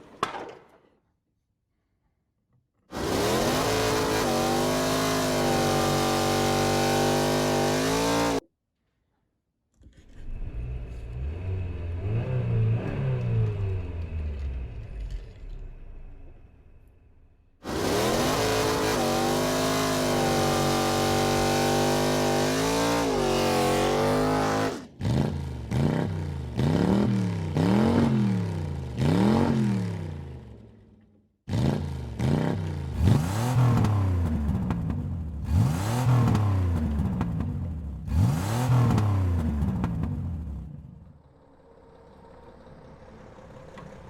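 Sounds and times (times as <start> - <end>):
car engine revving: 3.0 - 8.4, 17.6 - 30.0, 31.5 - 40.8.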